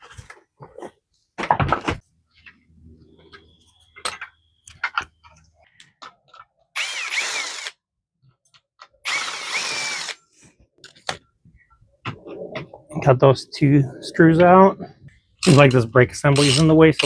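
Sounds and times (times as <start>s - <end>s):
power drill whining: 6.8s - 7.8s, 9.0s - 10.2s.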